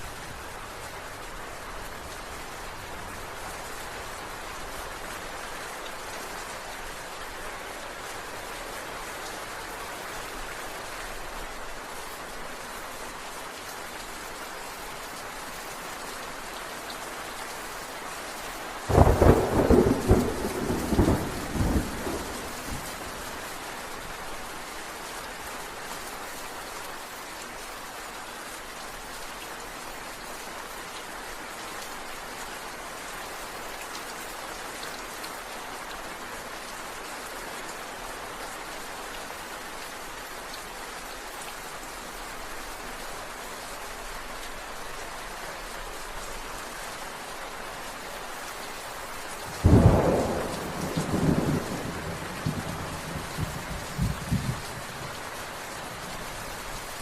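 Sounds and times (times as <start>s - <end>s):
steady rain: 0.0s - 57.0s
thunder crackling and rumbling: 18.9s - 23.2s, 49.6s - 55.2s.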